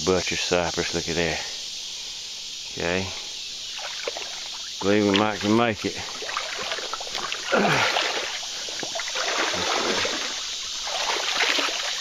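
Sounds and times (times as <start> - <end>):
water sloshing and splashing: 3.6 - 12.0
person grunting: 7.4 - 8.0.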